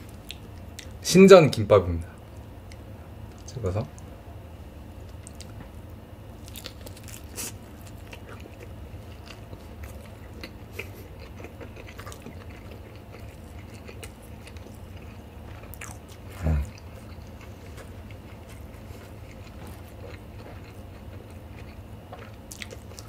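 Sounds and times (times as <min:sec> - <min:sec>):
chewing with wet clicks: 0:00.2 - 0:01.6, 0:05.0 - 0:05.7, 0:06.4 - 0:23.0
biting into food: 0:06.4 - 0:23.0.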